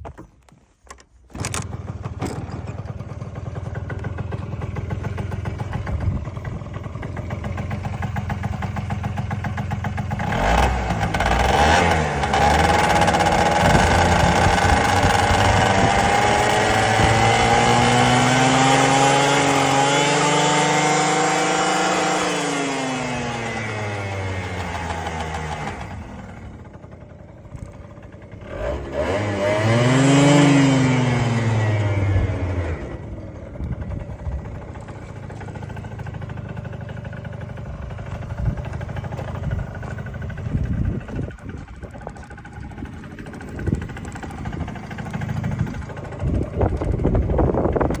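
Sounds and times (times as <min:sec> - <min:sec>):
engine rattling: 0:00.0 - 0:48.0
scooter engine running: 0:00.0 - 0:48.0.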